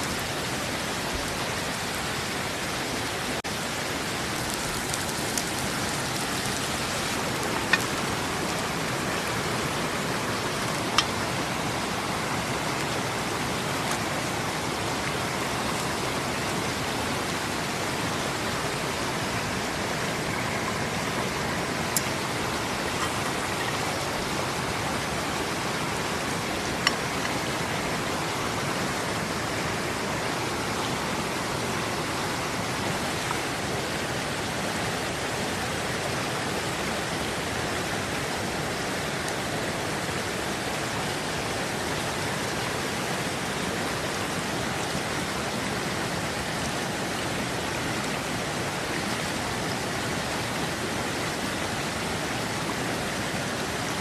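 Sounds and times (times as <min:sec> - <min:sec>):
running water rushing: 0:00.0 - 0:54.0.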